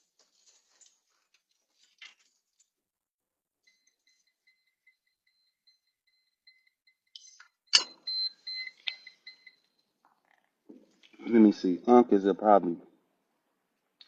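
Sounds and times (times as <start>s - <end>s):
high electronic beep: 3.7s - 9.7s.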